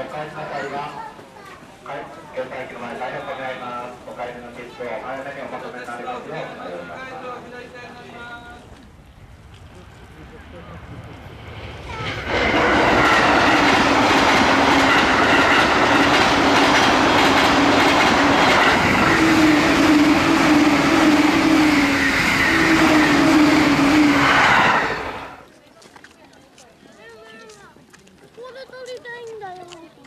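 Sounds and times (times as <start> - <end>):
train passing rumble: 5.3 - 25.4.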